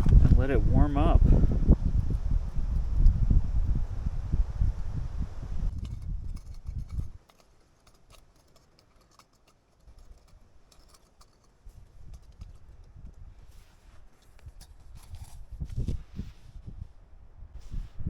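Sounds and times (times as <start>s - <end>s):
wind buffeting microphone: 0.0s - 7.2s, 11.7s - 13.6s, 14.4s - 18.0s.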